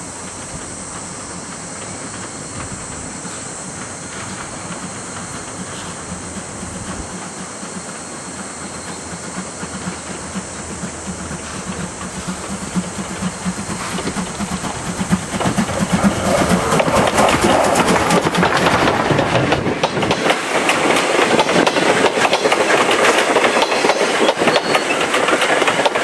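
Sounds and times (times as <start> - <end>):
hiss of steam: 0.0 - 26.0
steam locomotive approaching: 0.0 - 26.0.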